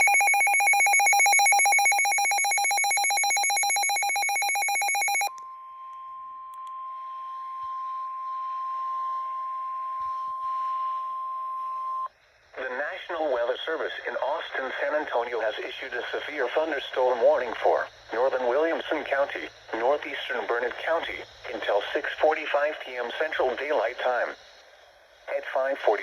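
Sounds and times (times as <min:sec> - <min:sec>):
steady alarm tone: 0:00.0 - 0:05.4.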